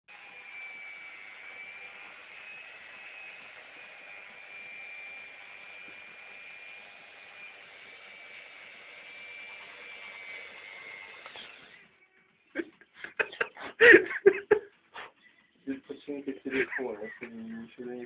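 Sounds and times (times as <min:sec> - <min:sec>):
electric drill whining: 0:00.1 - 0:12.2.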